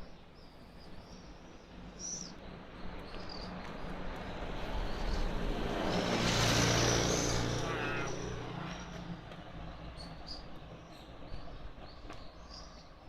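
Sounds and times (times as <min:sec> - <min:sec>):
small birds chirping: 0:00.0 - 0:04.0
motor vehicle passing: 0:03.7 - 0:10.2.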